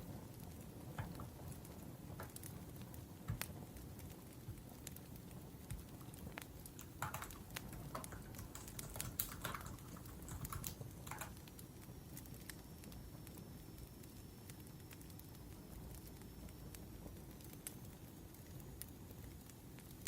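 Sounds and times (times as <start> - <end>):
wood fire crackling: 0.0 - 20.0
laptop keyboard typing: 6.0 - 11.6.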